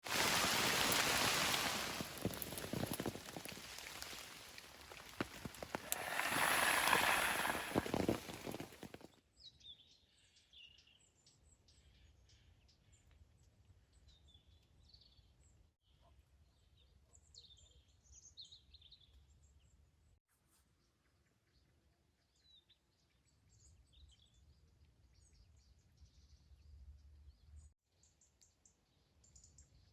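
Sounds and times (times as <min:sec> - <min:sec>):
heavy rain hissing: 0:00.0 - 0:09.0.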